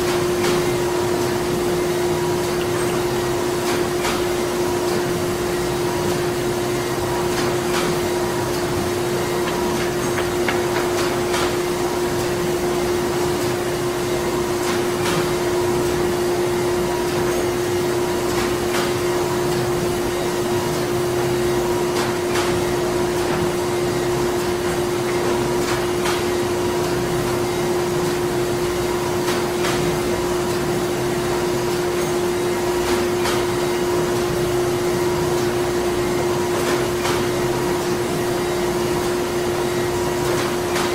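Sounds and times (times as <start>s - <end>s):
machinery humming and whirring: 0.0s - 29.1s.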